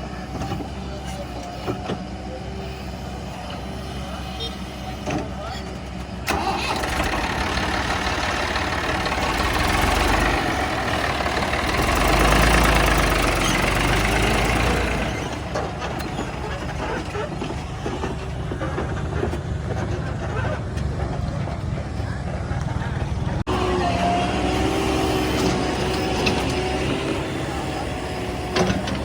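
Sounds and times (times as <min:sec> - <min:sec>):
diesel machinery engine running: 0:00.0 - 0:29.0.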